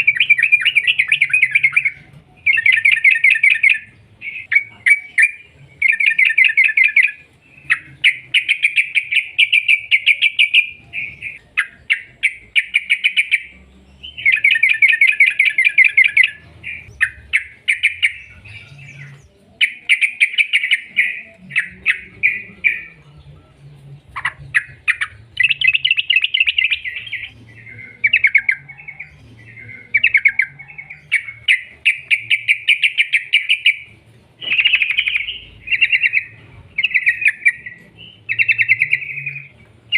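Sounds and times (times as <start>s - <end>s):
bird rattling song: 24.1s - 39.9s.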